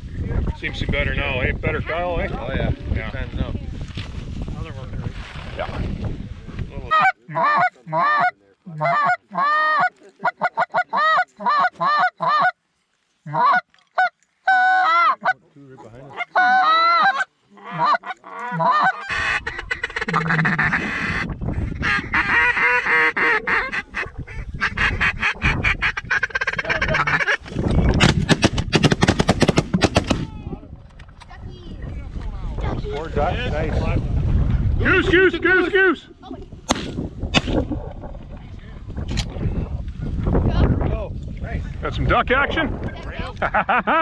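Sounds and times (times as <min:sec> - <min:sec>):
wind noise: 0:00.0 - 0:07.0, 0:19.0 - 0:44.0
geese honking: 0:06.9 - 0:12.6, 0:13.2 - 0:15.4, 0:16.1 - 0:27.5.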